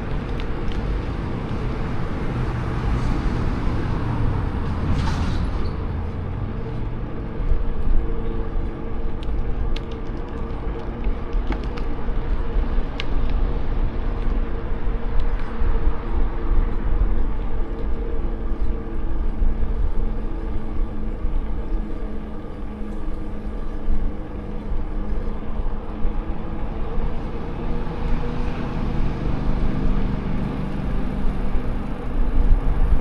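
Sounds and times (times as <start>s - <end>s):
wind buffeting microphone: 0.0s - 33.0s
vehicle passing close by: 0.8s - 7.1s.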